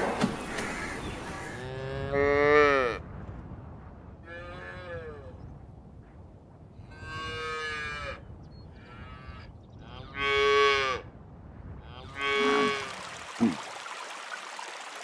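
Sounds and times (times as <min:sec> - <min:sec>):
cattle mooing: 0:12.0 - 0:12.9
running water hiss: 0:12.4 - 0:15.0.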